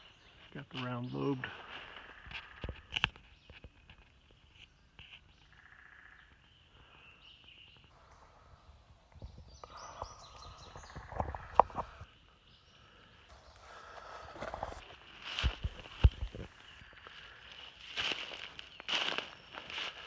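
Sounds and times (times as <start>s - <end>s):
woodland birds singing: 0.0s - 20.0s
rustle of leaf litter: 17.4s - 20.0s.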